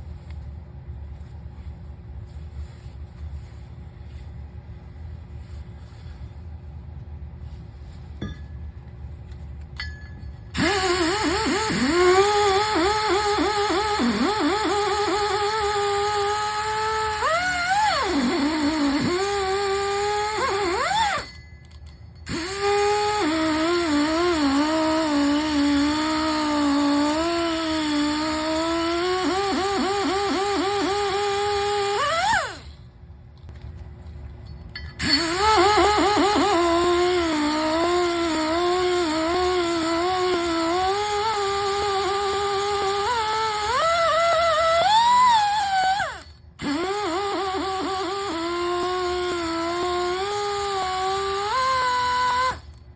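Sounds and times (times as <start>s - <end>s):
power tool whining under load: 10.6s - 21.3s, 22.3s - 32.8s, 35.0s - 52.8s.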